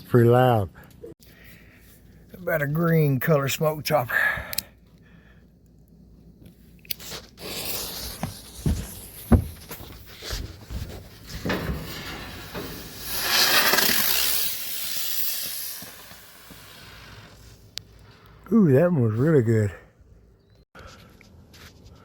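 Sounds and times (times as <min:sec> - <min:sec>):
firework hissing and cracking: 0:07.0 - 0:09.4, 0:11.7 - 0:17.7
firework fuse click: 0:11.7 - 0:17.9.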